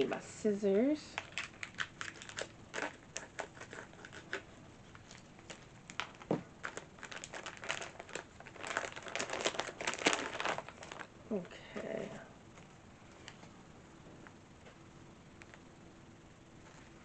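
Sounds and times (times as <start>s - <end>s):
plastic bag crinkling: 1.2s - 11.9s.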